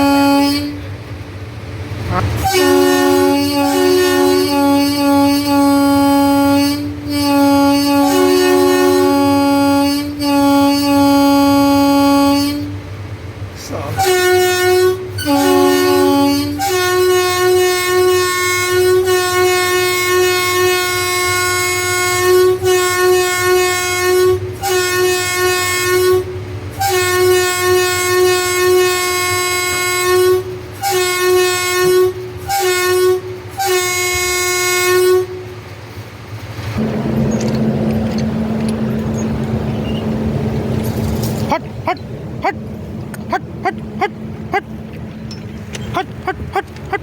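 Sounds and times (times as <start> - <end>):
locomotive horn blasts: 0.0 - 1.0, 2.2 - 12.9, 13.9 - 35.6.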